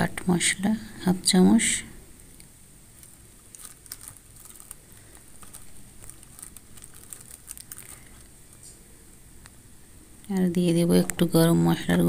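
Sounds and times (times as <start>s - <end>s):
food crackling in a pan: 3.0s - 8.7s.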